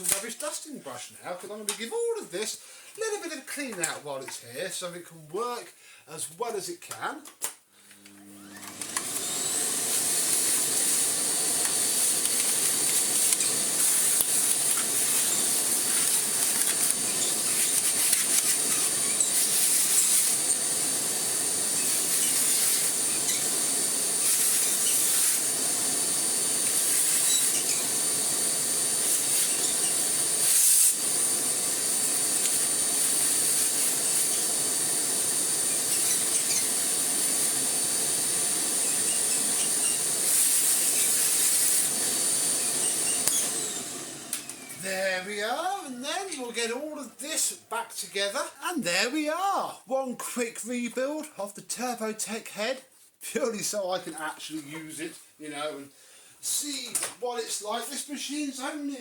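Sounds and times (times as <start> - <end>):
vacuum cleaner running: 8.0 - 46.3.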